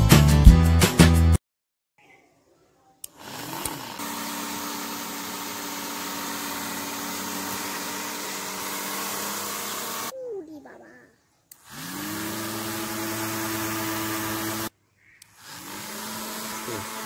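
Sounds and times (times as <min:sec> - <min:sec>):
small electric motor whirring: 0:03.0 - 0:10.1, 0:11.5 - 0:17.0.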